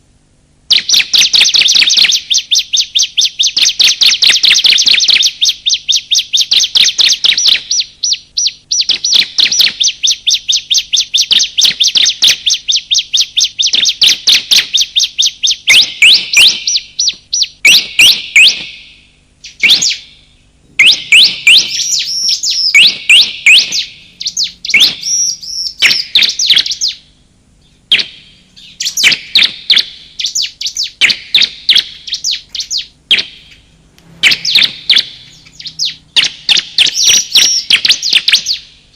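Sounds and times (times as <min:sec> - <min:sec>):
bird chip notes: 0:00.7 - 0:38.9
bird rising notes: 0:20.6 - 0:38.6.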